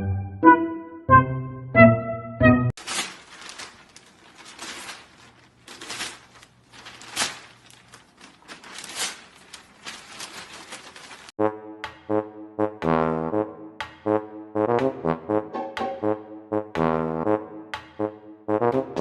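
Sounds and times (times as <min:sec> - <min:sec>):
rustling and crackling: 0:02.8 - 0:11.4.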